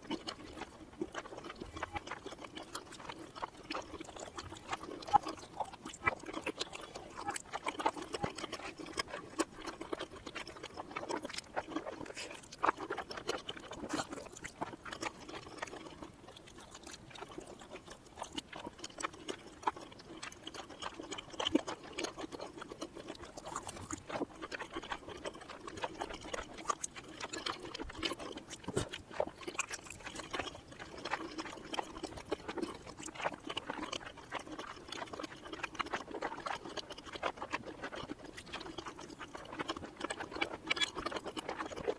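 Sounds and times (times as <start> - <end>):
reversed chewing mouth clicks: 0.0 - 41.9.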